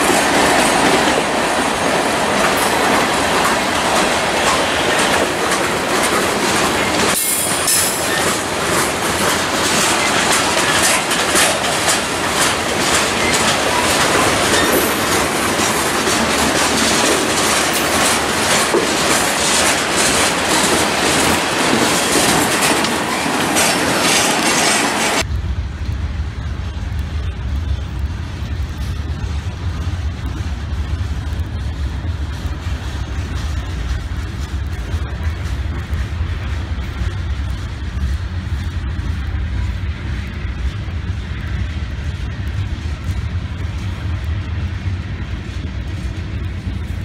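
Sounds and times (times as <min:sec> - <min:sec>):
train wheels clattering over rail joints: 0:00.0 - 0:25.3
distant train rumble: 0:00.0 - 0:47.0.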